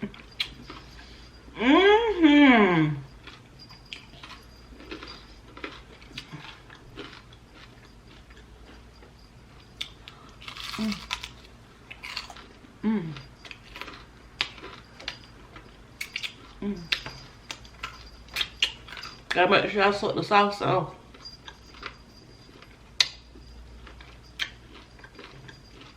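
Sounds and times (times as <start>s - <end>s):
chewing with wet smacking: 23.8s - 25.9s.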